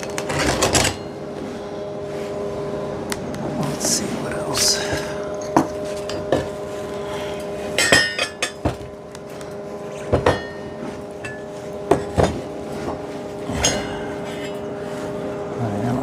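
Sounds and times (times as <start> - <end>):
metal clanks ringing: 0.0 - 1.2, 4.8 - 6.6, 7.4 - 9.0, 9.9 - 14.8
electrical hum: 0.0 - 16.0.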